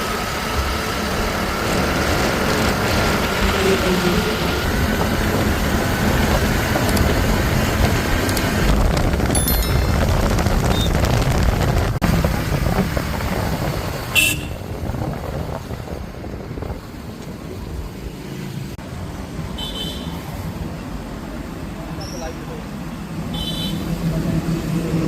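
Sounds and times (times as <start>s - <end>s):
short high-pitched sound: 9.3s - 10.2s.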